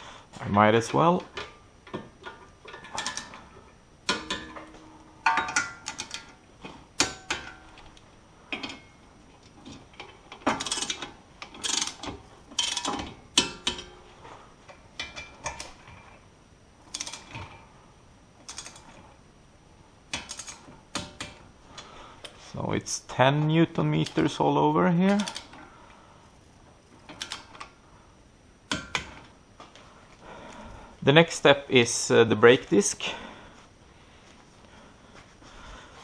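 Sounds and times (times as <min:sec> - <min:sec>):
ratchet clicks: 0:10.4 - 0:13.8, 0:16.9 - 0:17.4, 0:18.4 - 0:18.9, 0:20.1 - 0:21.3, 0:25.1 - 0:25.6, 0:27.1 - 0:27.7.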